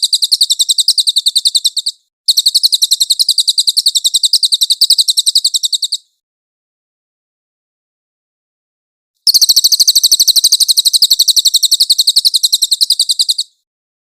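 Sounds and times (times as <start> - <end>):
bird high-pitched trill: 0.0 - 6.1, 9.2 - 13.6.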